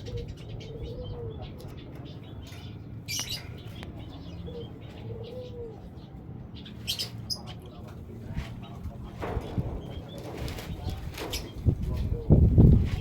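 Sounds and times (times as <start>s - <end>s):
small birds chirping: 0.0s - 13.0s
wings fluttering in cage: 9.2s - 13.0s.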